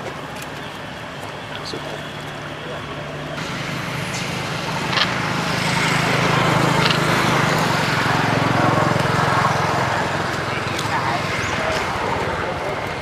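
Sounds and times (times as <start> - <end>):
motor running steadily: 0.0 - 13.0.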